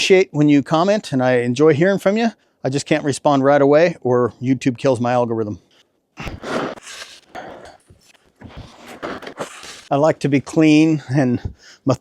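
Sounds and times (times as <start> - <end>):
shovel scraping snow: 8.5 - 9.9.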